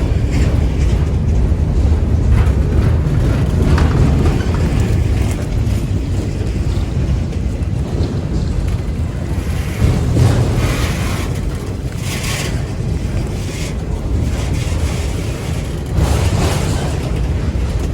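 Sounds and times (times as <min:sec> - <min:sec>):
train wheels rumbling on rails: 0:00.0 - 0:17.9.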